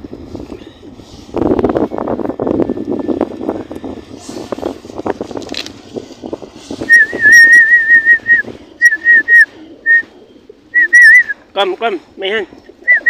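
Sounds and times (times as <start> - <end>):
person whistling high note: 6.8 - 10.0, 10.8 - 11.4.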